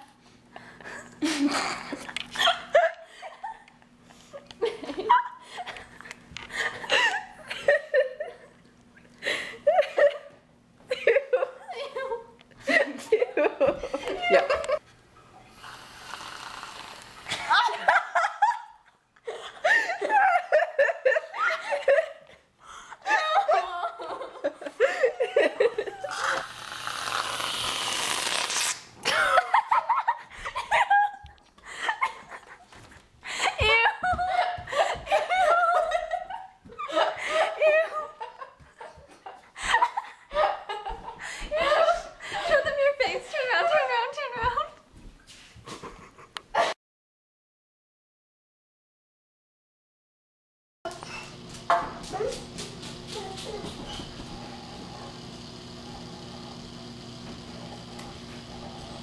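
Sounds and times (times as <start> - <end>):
people laughing and giggling: 0.6 - 8.6, 9.2 - 14.8, 17.3 - 26.2, 29.0 - 44.6, 45.6 - 46.8
people speaking: 33.6 - 34.4, 41.6 - 44.8, 52.0 - 52.5.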